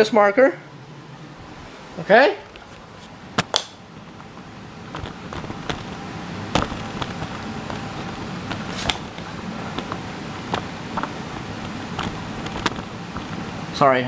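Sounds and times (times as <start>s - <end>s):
furnace blower running: 0.0s - 14.0s
handling clicks and knocks: 4.9s - 13.3s.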